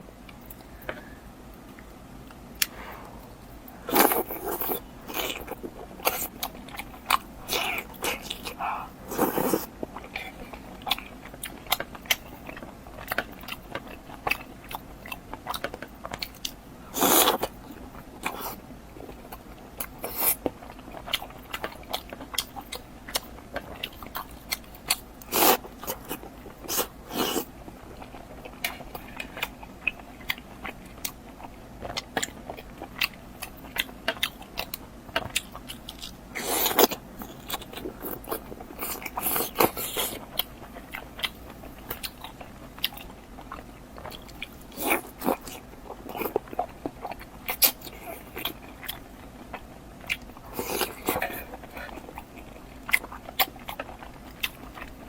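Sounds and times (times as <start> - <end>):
person chewing food: 0.3 - 55.0.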